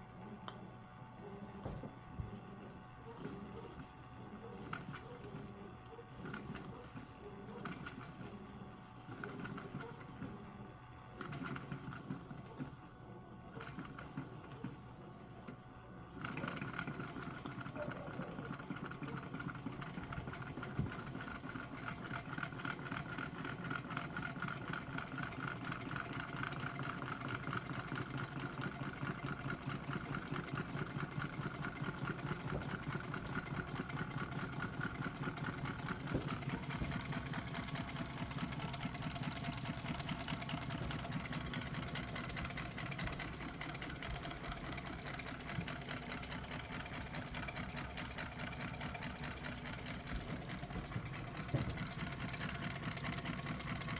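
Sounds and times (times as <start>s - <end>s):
small engine mechanical clatter: 16.1s - 53.9s.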